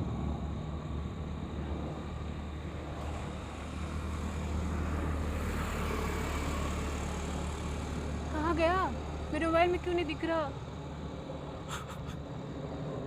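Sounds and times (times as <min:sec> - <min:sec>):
airplane engine rumble: 0:00.0 - 0:13.0.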